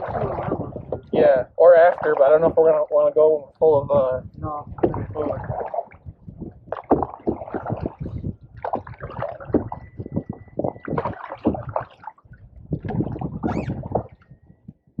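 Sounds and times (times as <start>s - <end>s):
canoe paddles splashing in water: 0.0s - 3.0s, 4.6s - 14.4s.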